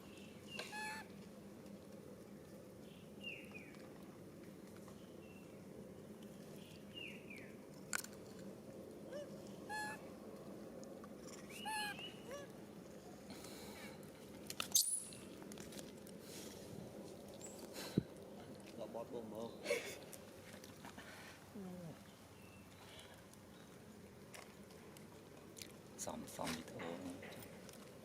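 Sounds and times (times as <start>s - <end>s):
outdoor background noise: 0.0s - 28.0s
short animal calls: 0.6s - 1.1s, 9.1s - 10.0s, 11.6s - 12.5s.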